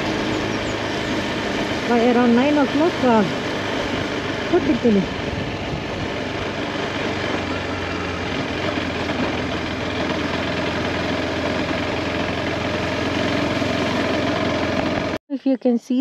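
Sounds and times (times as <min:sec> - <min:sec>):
motorcycle engine running: 0:00.0 - 0:15.7.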